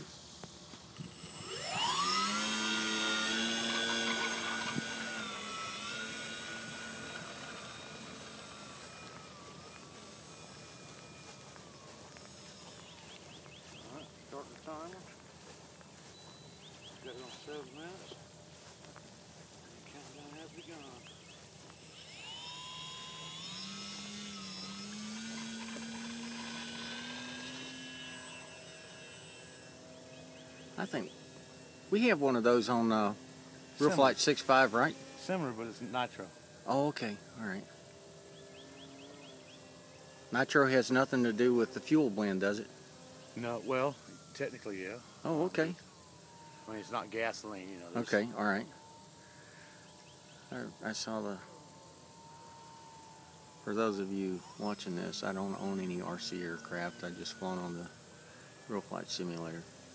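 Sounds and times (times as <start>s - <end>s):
model plane engine at high throttle: 0.0s - 18.4s, 19.0s - 59.9s.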